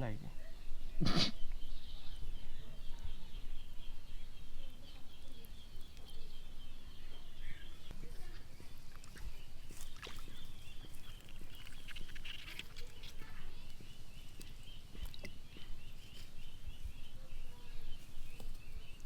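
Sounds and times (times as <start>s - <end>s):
high-pitched animal chorus: 7.4s - 15.4s.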